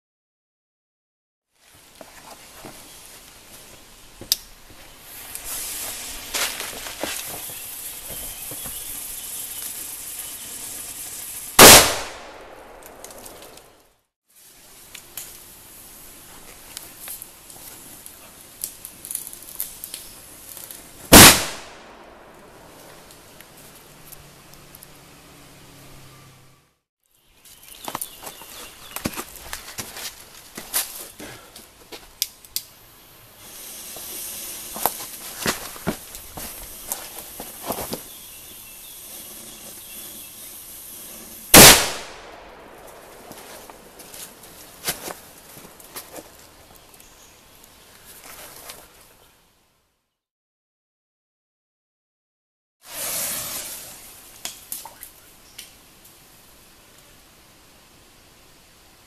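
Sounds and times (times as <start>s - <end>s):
lit fuse fizzing: 4.2s - 13.8s, 14.4s - 25.0s, 33.4s - 47.7s, 52.8s - 56.2s
firecracker bang: 11.6s - 13.5s, 21.1s - 22.3s, 41.5s - 43.7s, 52.9s - 54.0s.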